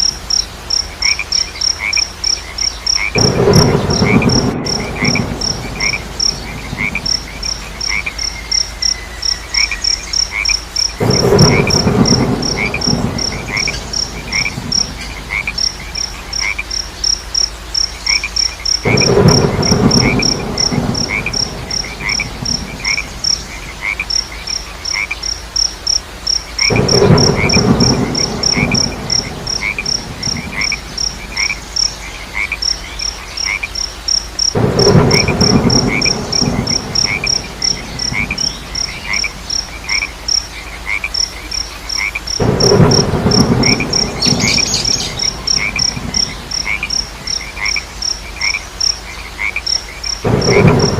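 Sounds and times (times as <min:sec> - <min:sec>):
crickets chirping fast and high: 0:00.0 - 0:50.9
frogs croaking: 0:00.0 - 0:50.9
lower chirp: 0:42.7 - 0:47.0.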